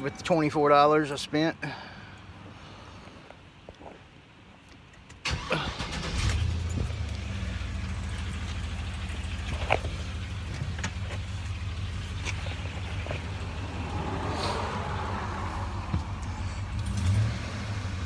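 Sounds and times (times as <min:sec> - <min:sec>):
engine idling: 0:05.2 - 0:18.0.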